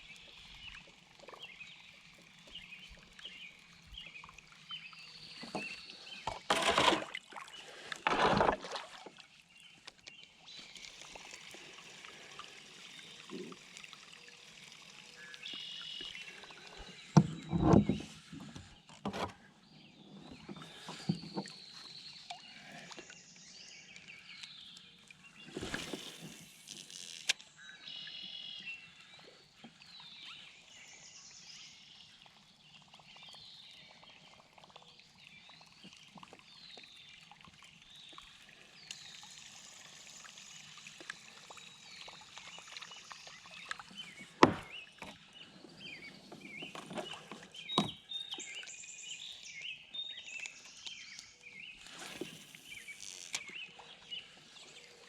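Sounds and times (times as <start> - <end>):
birds singing and chirping: 41.8 - 55.0.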